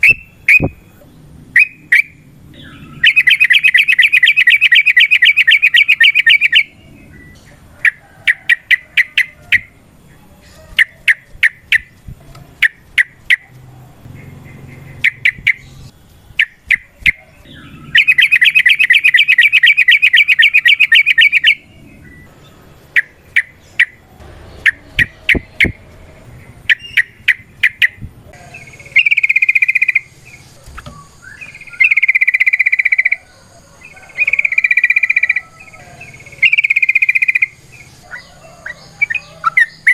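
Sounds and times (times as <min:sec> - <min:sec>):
bulbul chattering trill: 0:00.0 - 0:09.8, 0:10.7 - 0:39.9
sharp bird chip notes: 0:22.9 - 0:33.2.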